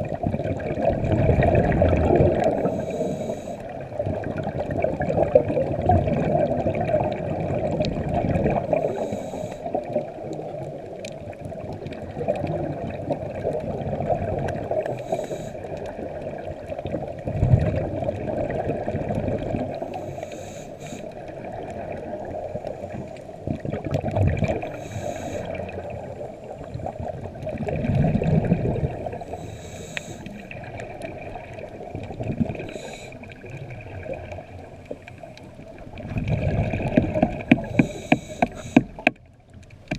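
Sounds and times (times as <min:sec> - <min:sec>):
bubbles gurgling underwater: 0:00.0 - 0:20.4, 0:21.0 - 0:39.9
diver breathing through regulator: 0:02.4 - 0:03.8, 0:08.6 - 0:09.9, 0:14.8 - 0:15.8, 0:19.8 - 0:21.2, 0:24.6 - 0:25.7, 0:29.2 - 0:30.6, 0:32.5 - 0:33.4, 0:37.4 - 0:39.1.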